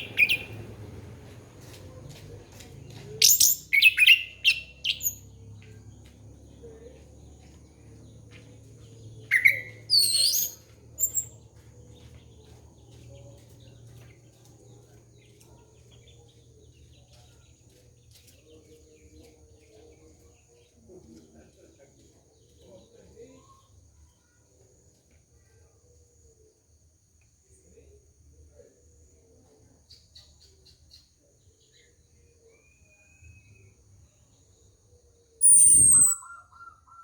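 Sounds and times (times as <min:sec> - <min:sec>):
thrush singing whistled phrases: 0:09.3 - 0:11.3, 0:35.4 - 0:37.0.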